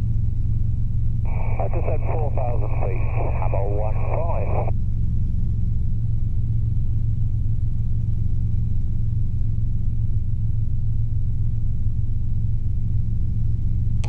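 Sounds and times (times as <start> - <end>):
helicopter engine and rotors droning: 1.3 - 4.8.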